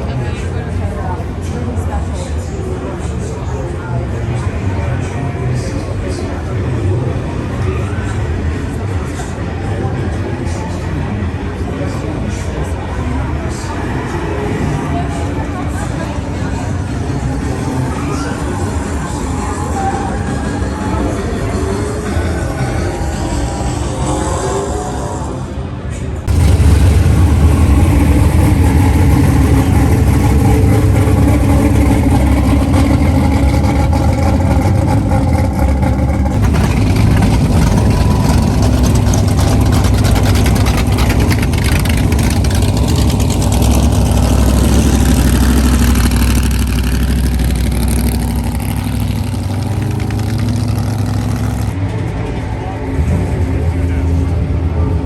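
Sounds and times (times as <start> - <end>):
loud car engine running: 26.2 - 55.0.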